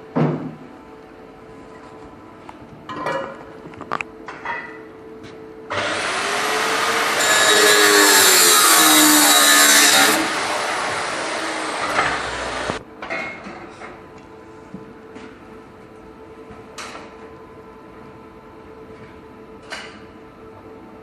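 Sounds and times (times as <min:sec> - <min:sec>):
power tool running under load: 0:05.7 - 0:12.8.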